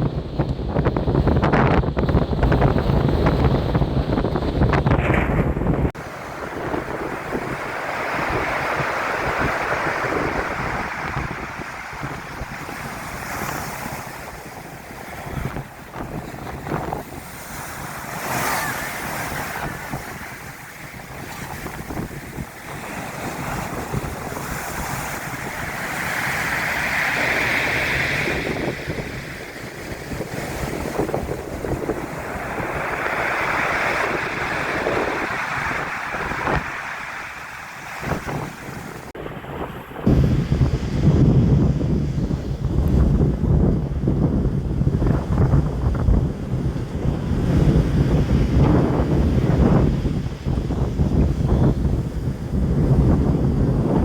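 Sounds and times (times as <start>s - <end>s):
wind buffeting microphone: 0.0s - 54.0s
waves breaking on shingle: 6.0s - 29.2s, 29.8s - 39.1s.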